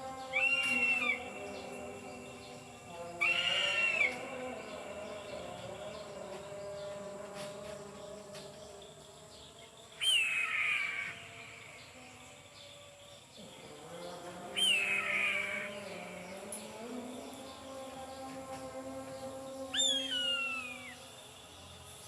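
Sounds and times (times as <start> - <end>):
eagle screeching: 3.2 - 4.2.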